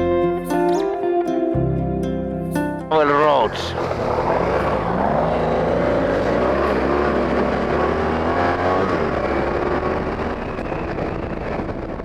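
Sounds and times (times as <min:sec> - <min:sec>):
motorcycle engine revving: 0:03.0 - 0:12.0
wind noise: 0:07.2 - 0:12.0.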